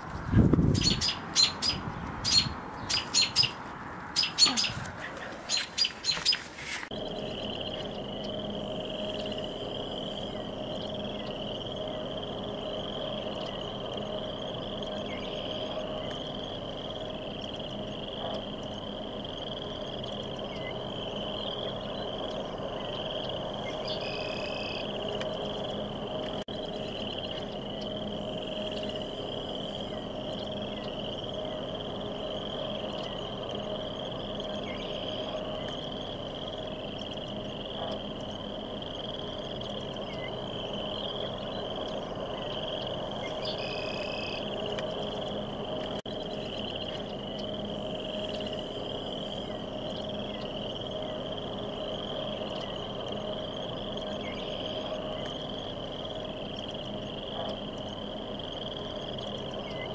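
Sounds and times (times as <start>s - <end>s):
bird calling: 0.6s - 45.4s
high wavering drone: 6.8s - 59.9s.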